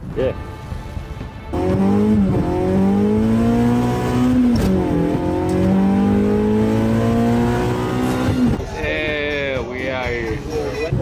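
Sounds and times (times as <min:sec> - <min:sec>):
car engine accelerating: 0:01.5 - 0:08.7.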